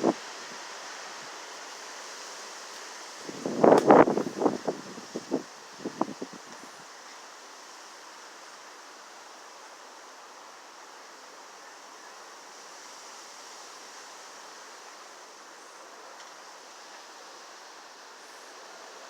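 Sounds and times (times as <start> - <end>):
strong wind blowing: 3.2 - 6.7.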